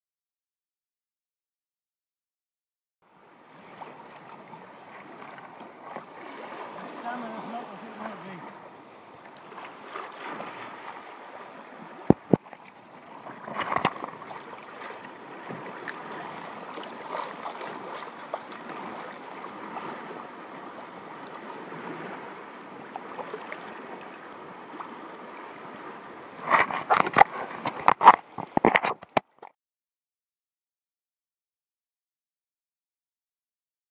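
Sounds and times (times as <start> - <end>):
water splashing around kayak: 3.1 - 29.5.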